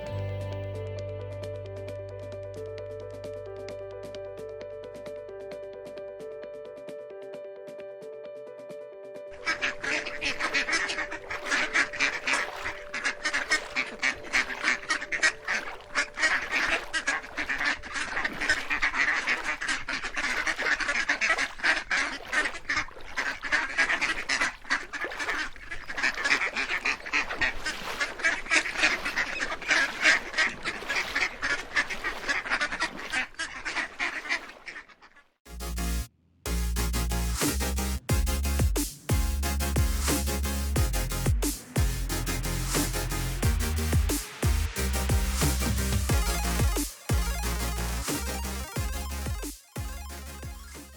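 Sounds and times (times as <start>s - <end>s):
waterfowl honking and quacking: 9.4s - 35.3s.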